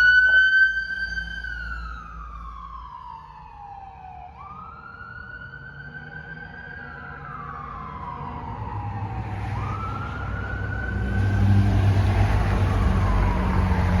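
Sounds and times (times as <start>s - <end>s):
fire truck siren wailing: 0.0s - 14.0s
truck engine rumble: 7.2s - 14.0s.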